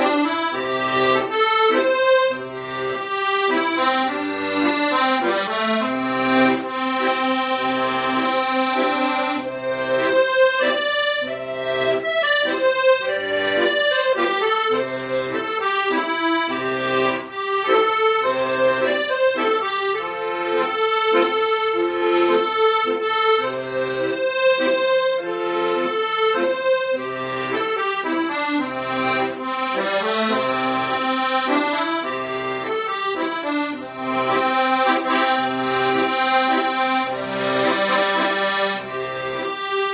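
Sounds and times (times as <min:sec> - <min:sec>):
accordion melody: 0:00.0 - 0:39.9
bass and chord accompaniment: 0:00.0 - 0:39.9.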